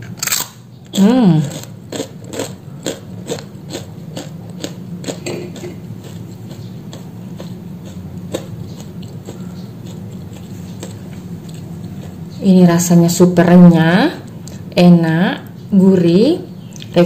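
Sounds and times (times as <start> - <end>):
crispy food crunching: 0.0 - 12.4
steady low hum: 0.0 - 17.0.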